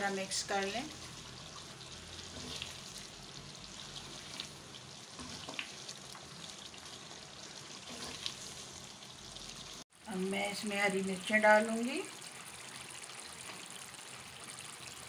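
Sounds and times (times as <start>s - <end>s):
meat curry sizzling in oil: 0.0s - 15.0s
wooden spatula scraping pan: 2.2s - 3.0s, 4.0s - 6.0s, 7.8s - 8.8s.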